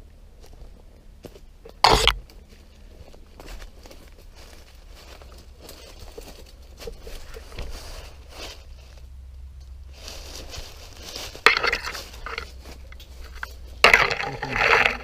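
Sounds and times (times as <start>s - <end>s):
dry leaves crunching and rustling: 2.3s - 9.1s, 9.8s - 15.0s.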